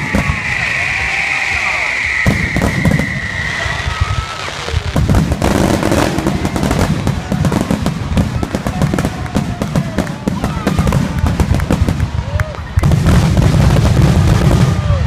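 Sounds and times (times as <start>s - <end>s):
firework whistle: 0.0s - 7.6s
firework crackle of small pops: 2.2s - 15.0s.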